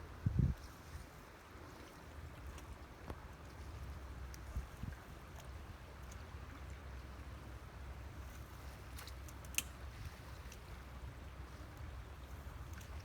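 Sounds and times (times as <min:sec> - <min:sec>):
wind rumble on microphone: 0:00.0 - 0:06.5.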